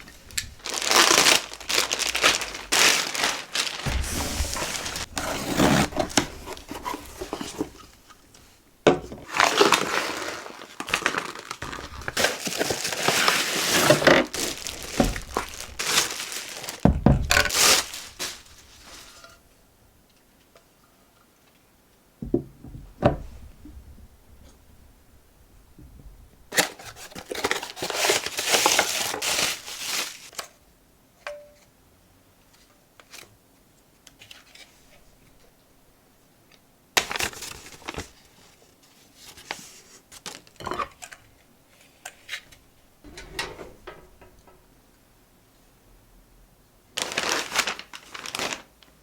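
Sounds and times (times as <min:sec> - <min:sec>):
packaging crinkling and tearing: 0:00.0 - 0:07.9, 0:09.2 - 0:19.2, 0:26.6 - 0:30.4, 0:37.0 - 0:38.2, 0:47.0 - 0:49.0
packaging rustling: 0:00.0 - 0:08.2, 0:09.2 - 0:19.4, 0:26.6 - 0:30.4, 0:47.0 - 0:49.0.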